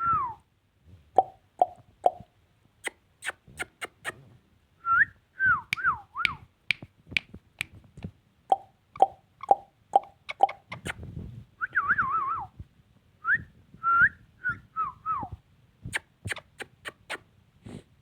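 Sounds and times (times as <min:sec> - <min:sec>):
parrot clicking and popping: 0:01.2 - 0:02.2, 0:05.7 - 0:11.0.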